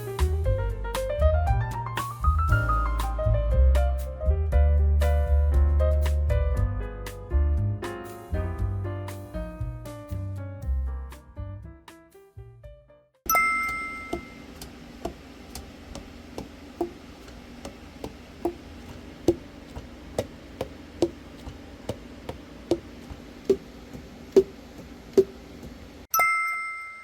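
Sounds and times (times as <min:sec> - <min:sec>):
bell-like chime: 0:13.3 - 0:14.4, 0:26.1 - 0:27.0.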